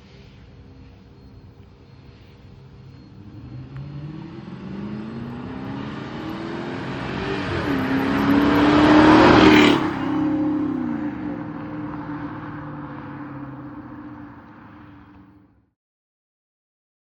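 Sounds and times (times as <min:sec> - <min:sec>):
car engine accelerating hard: 0:02.9 - 0:15.4.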